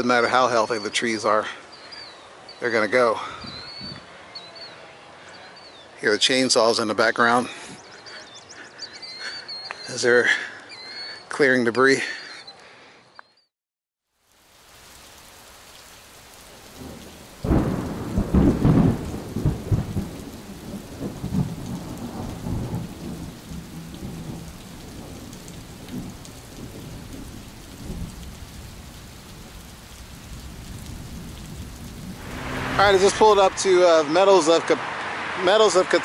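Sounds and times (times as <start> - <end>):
deep rumble: 32.1 - 33.8.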